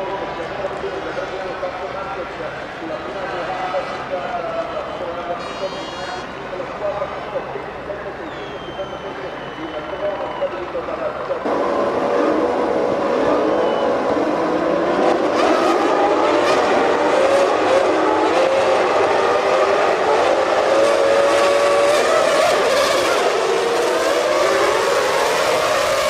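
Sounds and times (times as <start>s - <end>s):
race car engines revving: 10.6s - 26.0s.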